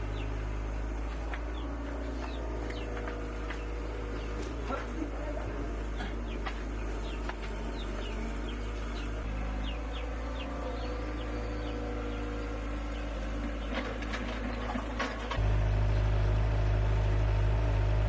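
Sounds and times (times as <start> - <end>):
engine droning: 0.0 - 18.0
bird chirping: 1.5 - 4.6, 6.2 - 14.0.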